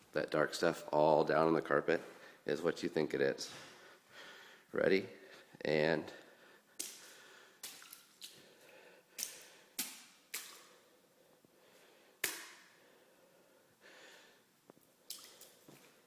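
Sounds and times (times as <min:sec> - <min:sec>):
footsteps squishing on wet carpet: 0:06.8 - 0:10.8, 0:15.1 - 0:16.0.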